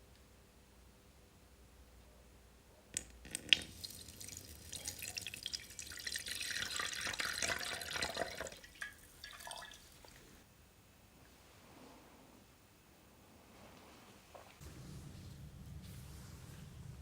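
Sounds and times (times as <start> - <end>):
running water splashing: 3.6 - 10.4.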